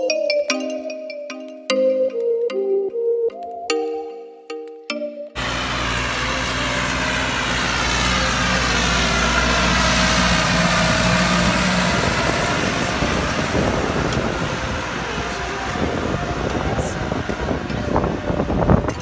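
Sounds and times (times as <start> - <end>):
tractor diesel engine under load: 5.4 - 19.0.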